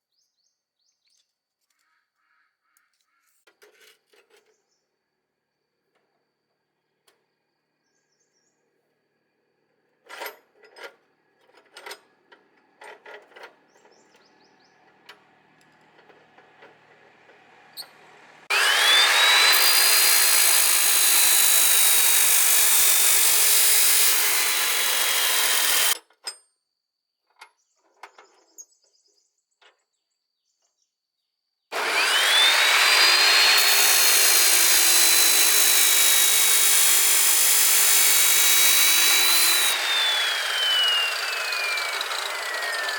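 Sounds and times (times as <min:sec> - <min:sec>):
power tool motor whine: 0:18.5 - 0:26.0, 0:31.7 - 0:42.9.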